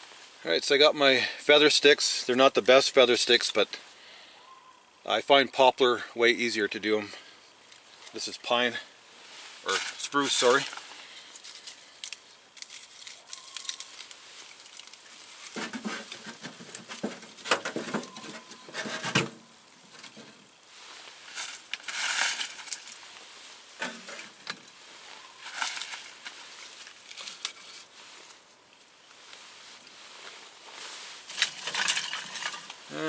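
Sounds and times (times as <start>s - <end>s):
rustling and scraping: 7.6s - 33.0s.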